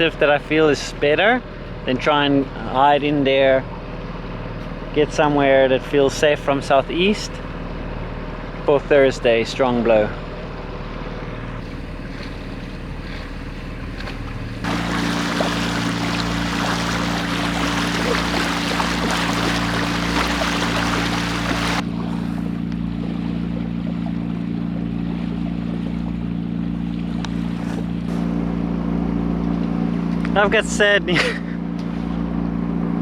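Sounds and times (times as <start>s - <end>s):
boat engine humming: 0.0s - 33.0s
rushing hiss of water or wind: 14.7s - 21.8s.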